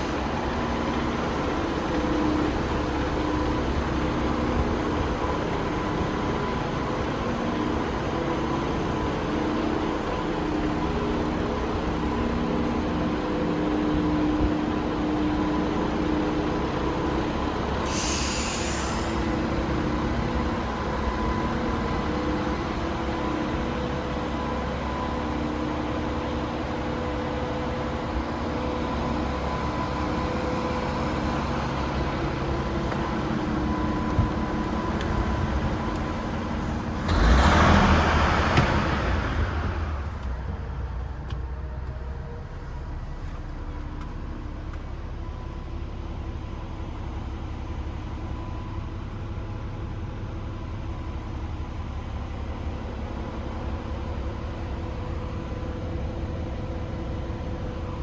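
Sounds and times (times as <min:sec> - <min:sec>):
diesel truck engine idling: 0:00.0 - 0:58.0
loud rushing hiss: 0:17.8 - 0:19.5.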